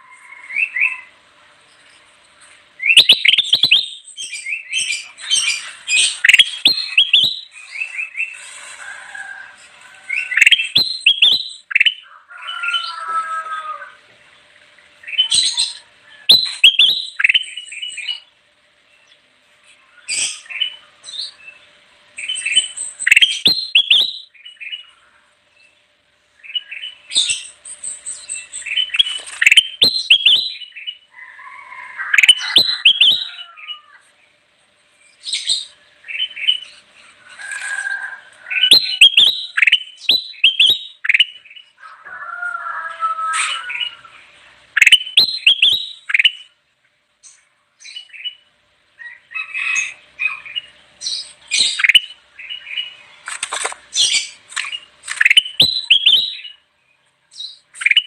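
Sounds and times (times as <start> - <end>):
bulbul singing chirps and whistles: 2.8 - 8.4, 10.1 - 12.0, 15.0 - 18.3, 22.2 - 24.9, 26.4 - 31.0, 32.1 - 33.4, 38.5 - 41.7, 44.7 - 46.6, 49.6 - 53.0, 54.0 - 56.6, 57.3 - 58.0.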